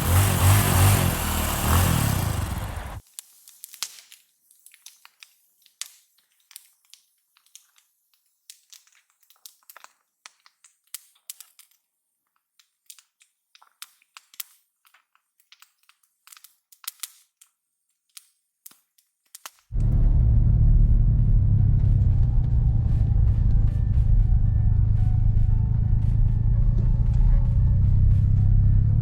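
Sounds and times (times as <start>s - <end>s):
wood fire crackling and popping: 3.2s - 11.8s, 12.6s - 17.2s.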